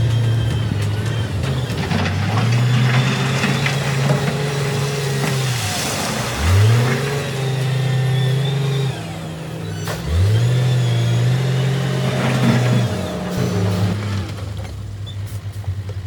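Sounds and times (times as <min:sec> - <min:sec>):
knocks and clanks: 0:00.0 - 0:07.8
diesel engine under load: 0:00.0 - 0:16.0.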